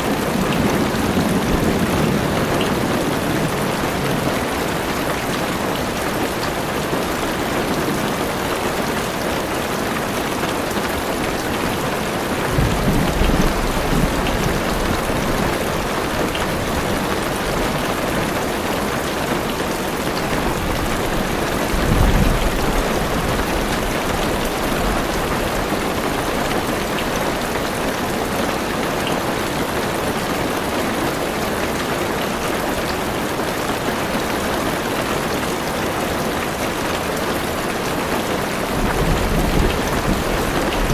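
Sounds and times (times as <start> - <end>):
low thunder rumbles: 0.0 - 4.8, 11.4 - 18.2, 20.3 - 26.6, 38.7 - 40.9
heavy rain on a car roof: 0.0 - 40.9.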